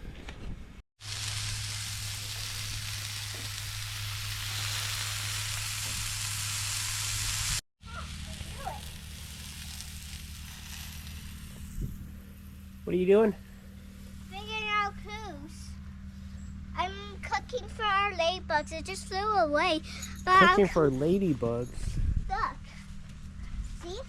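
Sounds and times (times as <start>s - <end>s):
burgers sizzling on griddle: 1.0s - 12.9s
low hum: 1.1s - 17.1s.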